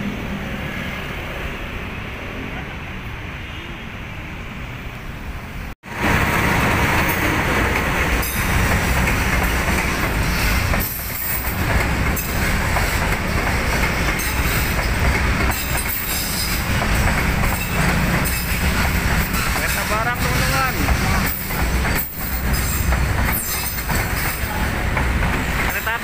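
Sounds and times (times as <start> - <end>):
train wheels rumbling on rail: 4.2 - 26.0
clickety-clack over rail joints: 6.1 - 26.0.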